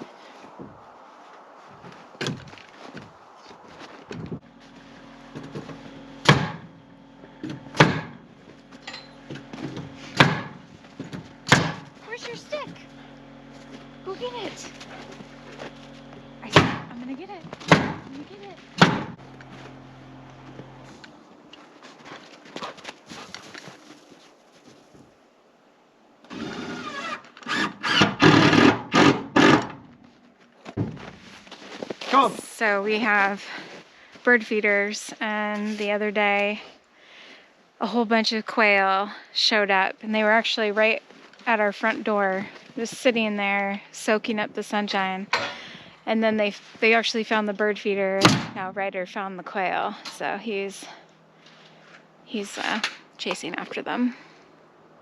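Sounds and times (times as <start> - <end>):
sharp knocks on wood framing: 5.4 - 6.7, 7.4 - 8.3, 9.2 - 12.0, 16.5 - 18.1, 18.8 - 19.2, 30.7 - 31.2
screw gun driving screws: 26.3 - 29.8.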